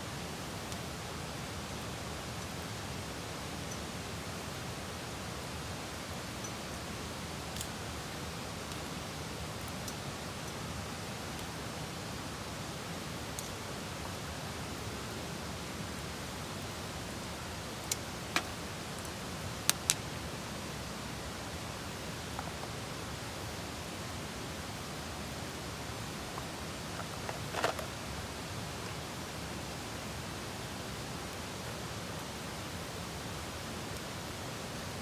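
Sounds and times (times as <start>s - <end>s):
steady hiss: 0.0s - 35.0s
sharp clicks: 19.7s - 20.0s.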